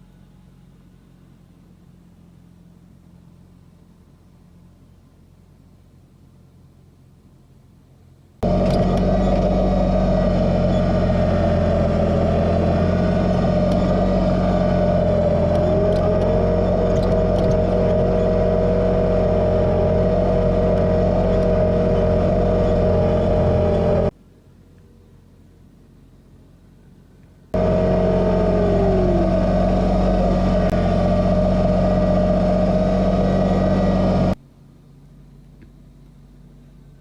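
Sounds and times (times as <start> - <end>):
high whining tone: 8.4 - 24.1, 27.6 - 34.4
tractor diesel engine running: 8.4 - 24.1, 27.5 - 34.4.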